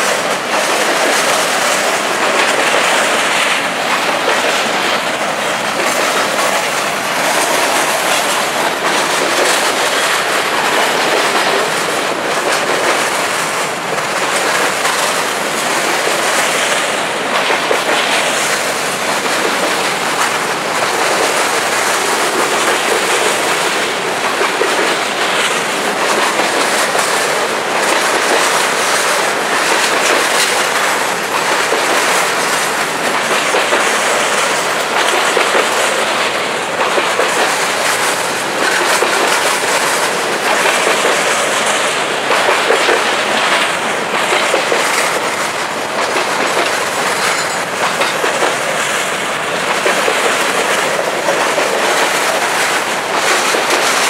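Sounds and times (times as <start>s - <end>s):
steel wheels rumbling on rail: 0.0s - 54.0s
wheels clicking over rail joints: 0.0s - 54.0s.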